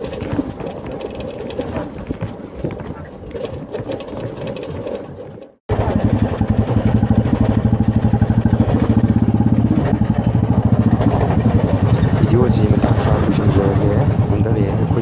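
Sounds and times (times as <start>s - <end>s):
motorcycle engine running: 5.7s - 15.0s.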